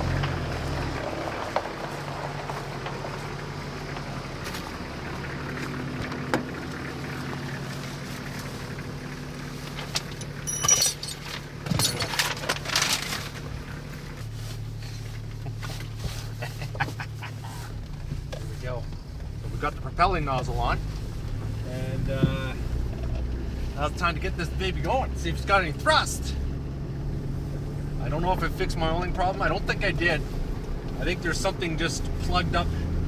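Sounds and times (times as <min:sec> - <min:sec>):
engine humming: 0:00.0 - 0:33.0
clattering and rattling: 0:09.6 - 0:13.8.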